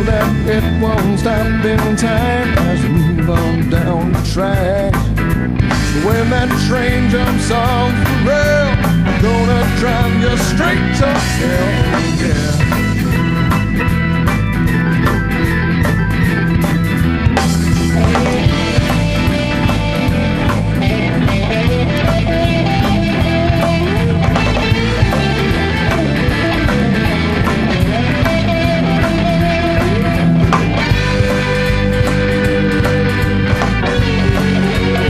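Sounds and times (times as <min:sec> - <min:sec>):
bass guitar: 0:00.0 - 0:35.0
drums: 0:00.0 - 0:35.0
lead guitar bent notes: 0:00.0 - 0:35.0.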